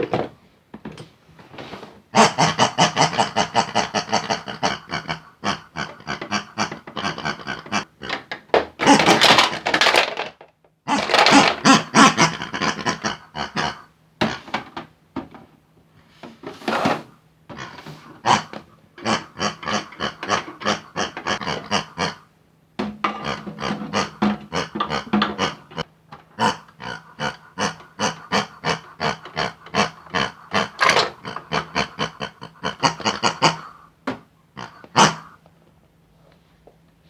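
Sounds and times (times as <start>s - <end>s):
pig oinking and grunting: 2.1s - 8.2s, 8.8s - 10.2s, 10.9s - 14.6s, 17.5s - 22.3s, 23.0s - 33.9s, 34.6s - 35.4s.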